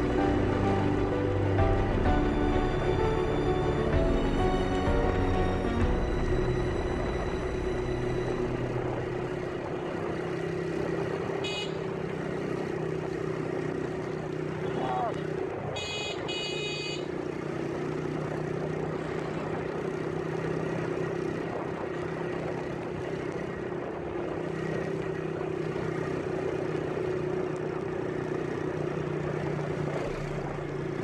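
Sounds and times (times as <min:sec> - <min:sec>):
noisy background: 0:00.0 - 0:11.0
vehicle engine droning: 0:00.0 - 0:31.0.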